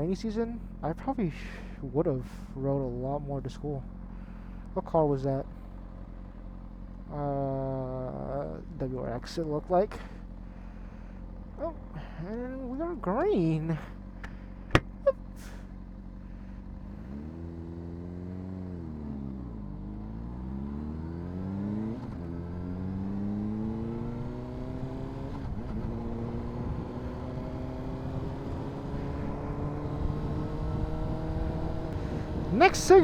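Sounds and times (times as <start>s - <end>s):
motorcycle engine revving: 13.2s - 33.0s.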